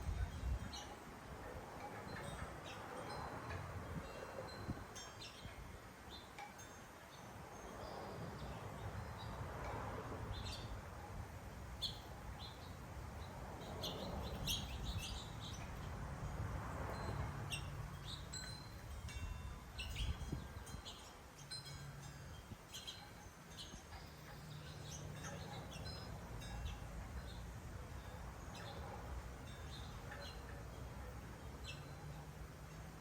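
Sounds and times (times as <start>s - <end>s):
small birds chirping: 11.7s - 16.0s, 22.7s - 32.3s.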